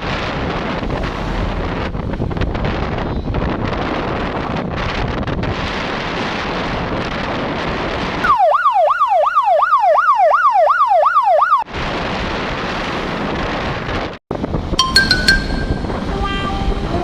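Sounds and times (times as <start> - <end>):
wind rushing on microphone: 0.0 - 8.3, 11.6 - 17.0.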